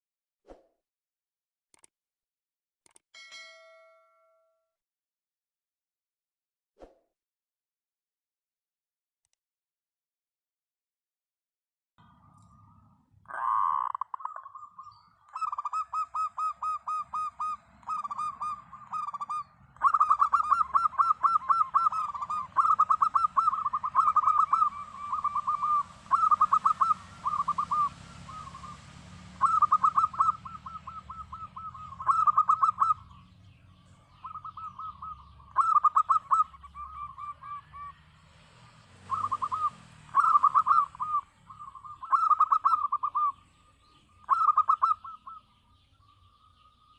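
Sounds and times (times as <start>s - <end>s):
dove trilling coos: 13.3s - 33.2s, 34.1s - 38.0s, 39.0s - 43.4s, 44.0s - 45.6s.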